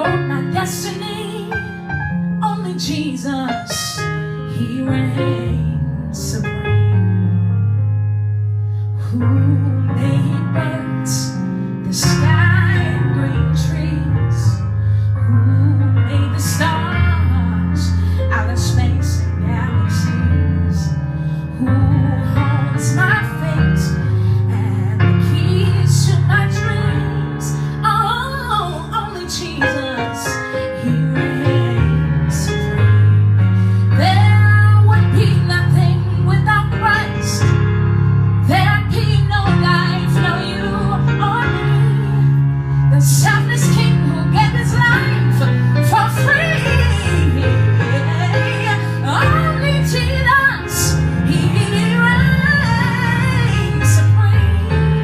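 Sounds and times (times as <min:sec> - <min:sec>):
held bass line: 0:31.9 - 0:55.0
woman singing gospel: 0:42.9 - 0:54.8.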